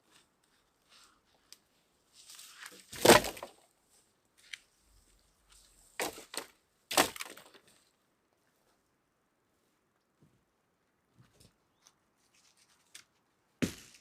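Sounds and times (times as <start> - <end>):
crunching and cracking: 6.0 - 7.8.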